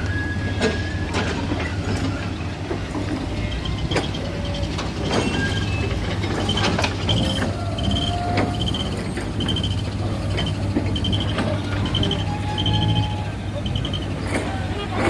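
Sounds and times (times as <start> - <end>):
machinery engine hum: 0.0 - 15.0
warning beeper pulses: 3.4 - 14.2.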